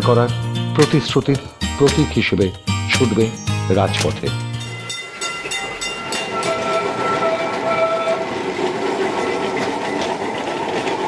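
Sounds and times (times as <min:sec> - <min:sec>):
tram running rumble: 0:00.0 - 0:11.0
tram wheels clicking on rails: 0:03.0 - 0:11.0
steady pitched tone: 0:04.6 - 0:08.6.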